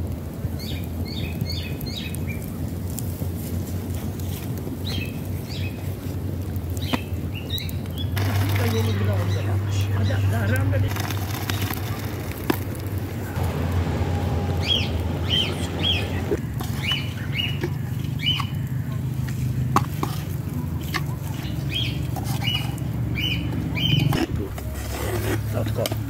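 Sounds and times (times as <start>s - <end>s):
low rumble: 2.4s - 26.0s
small bird chirping: 14.6s - 18.7s.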